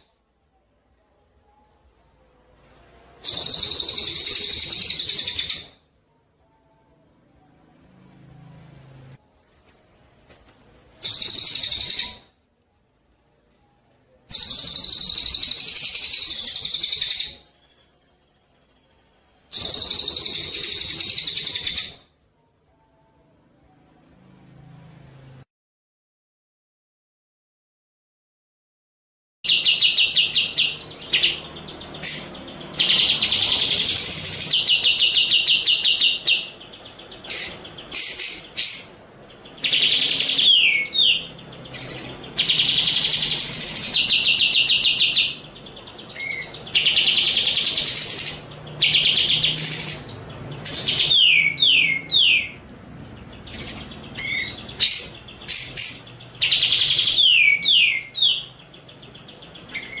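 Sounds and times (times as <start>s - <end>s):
sparrow trills and whistles: 3.2s - 5.8s, 19.5s - 22.0s, 46.1s - 52.6s, 53.5s - 60.0s.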